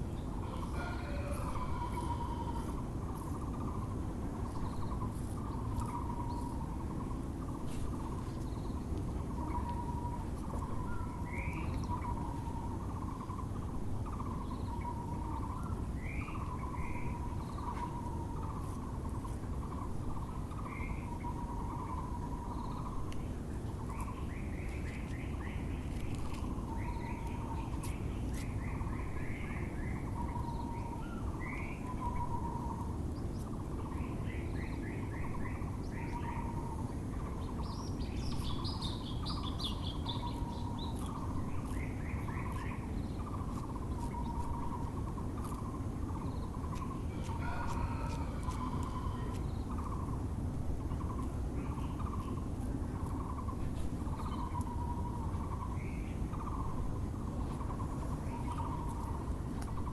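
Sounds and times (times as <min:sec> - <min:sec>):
low background noise: 0:00.0 - 0:59.9
small birds chirping: 0:00.0 - 0:59.9
barbet calling low notes: 0:00.4 - 0:04.0.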